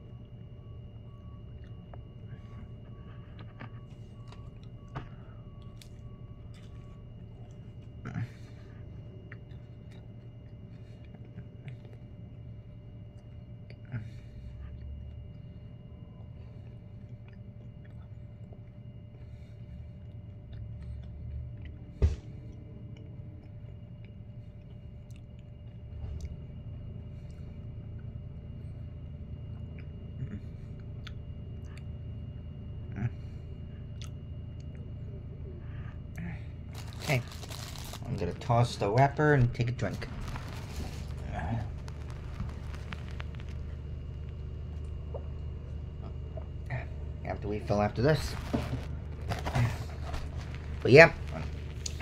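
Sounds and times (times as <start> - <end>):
low steady hum: 0.0 - 52.0
person chewing: 2.8 - 12.0, 16.6 - 19.2, 29.5 - 31.9, 33.9 - 34.9, 36.1 - 38.2, 39.9 - 47.2, 48.3 - 52.0
mouth clicks and crunches: 36.7 - 52.0.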